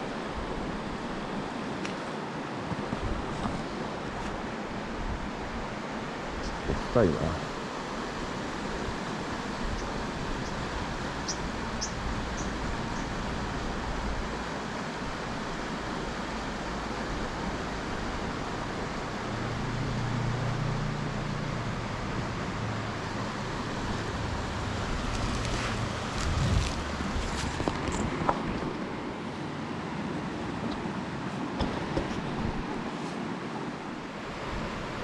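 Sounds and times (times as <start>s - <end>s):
stream rushing over rocks: 0.0s - 35.0s.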